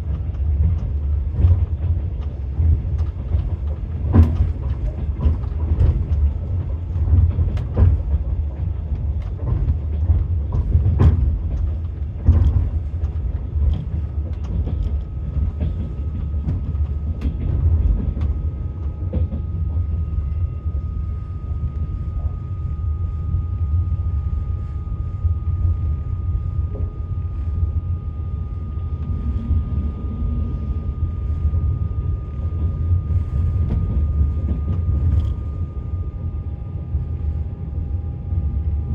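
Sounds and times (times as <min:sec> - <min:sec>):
train rumble inside carriage: 0:00.0 - 0:38.9
faint steady whine: 0:11.7 - 0:38.9.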